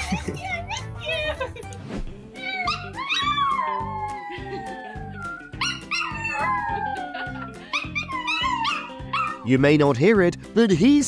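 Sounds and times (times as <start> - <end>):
dog howling: 2.4 - 9.4.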